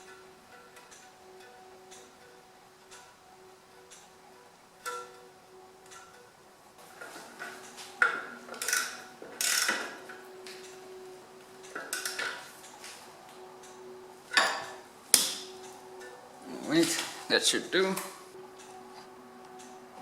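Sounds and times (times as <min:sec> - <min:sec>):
metal tool clinking: 0:14.3 - 0:15.6.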